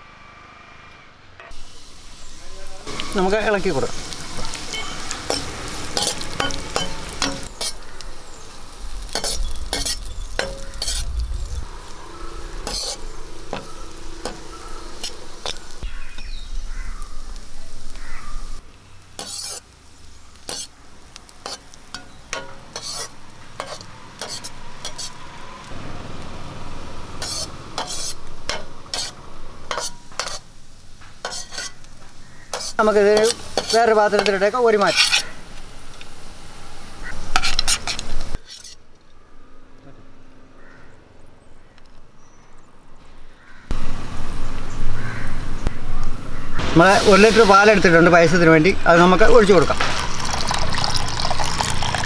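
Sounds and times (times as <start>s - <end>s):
food sizzling in a pan: 1.5s - 38.8s, 43.7s - 52.0s
spoon knocking and scraping pan: 4.4s - 7.8s, 21.4s - 25.1s, 31.2s - 31.8s, 32.5s - 35.3s.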